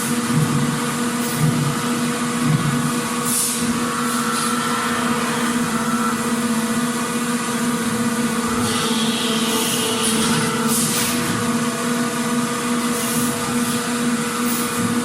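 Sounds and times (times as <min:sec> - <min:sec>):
factory machinery hum: 0:00.0 - 0:15.0
low machine pulse: 0:02.5 - 0:10.7.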